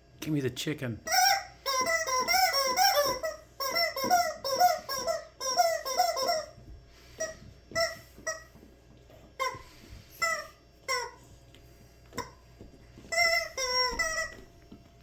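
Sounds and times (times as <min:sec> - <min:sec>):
squeaky rubber toy squawking: 0:01.1 - 0:06.6, 0:07.2 - 0:08.5, 0:09.4 - 0:11.3, 0:13.0 - 0:14.5.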